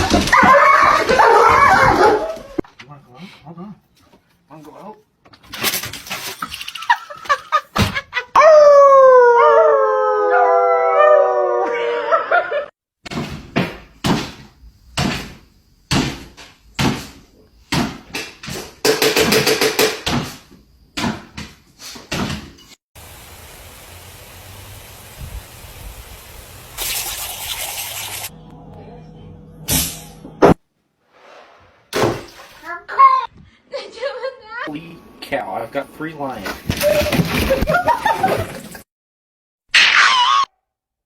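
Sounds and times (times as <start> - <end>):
dog howling: 8.4 - 12.4.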